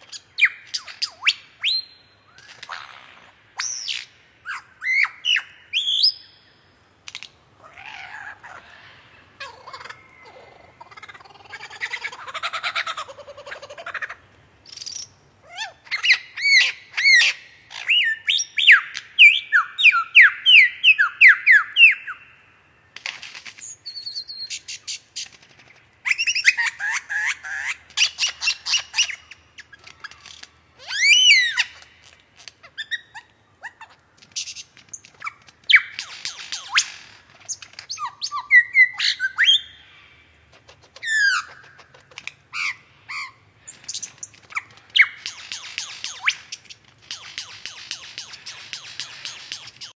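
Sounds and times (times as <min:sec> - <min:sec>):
bird singing: 0:00.0 - 0:06.6, 0:14.6 - 0:23.0, 0:34.4 - 0:40.4, 0:42.6 - 0:49.9.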